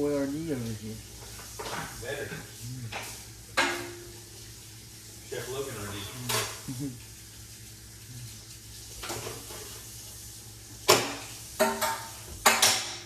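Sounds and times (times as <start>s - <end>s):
utensil clinking on dishes: 1.2s - 4.2s, 6.2s - 6.8s, 10.9s - 13.0s.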